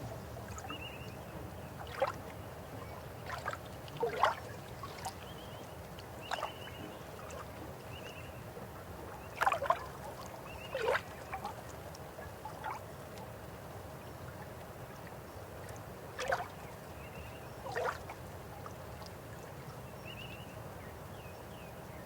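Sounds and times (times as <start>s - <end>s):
water gurgles and plops: 0.4s - 5.4s, 9.2s - 11.8s, 17.6s - 18.2s.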